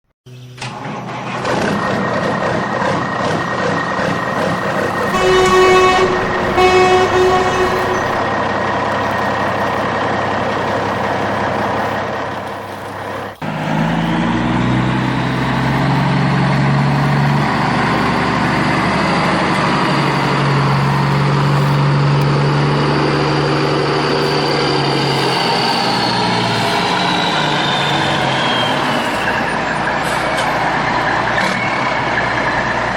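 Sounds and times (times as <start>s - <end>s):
toy engine drone: 0.3s - 32.9s
toy truck horn toots: 4.2s - 22.4s.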